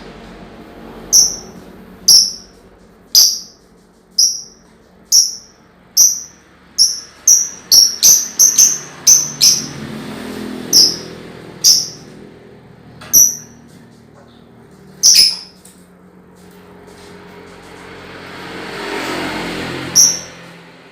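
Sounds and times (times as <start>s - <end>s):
lovebird shrill chirps: 1.2s - 2.5s, 3.2s - 3.6s, 4.2s - 9.8s, 10.7s - 12.0s, 13.1s - 13.6s, 15.0s - 15.6s, 20.0s - 20.4s.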